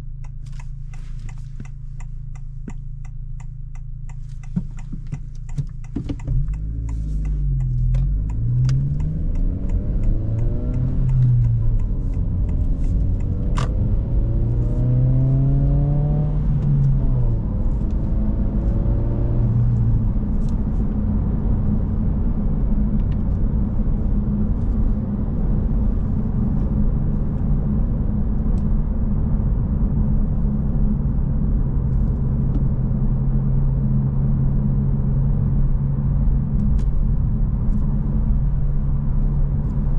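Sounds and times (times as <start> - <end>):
car engine accelerating through gears: 0.2 - 39.9
tyre and road noise: 4.2 - 33.0.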